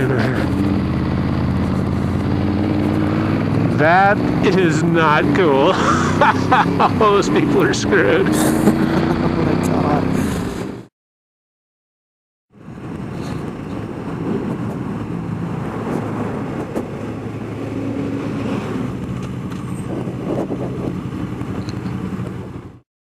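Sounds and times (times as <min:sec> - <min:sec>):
motorcycle engine running: 0:00.0 - 0:10.8
wind noise: 0:12.6 - 0:22.8.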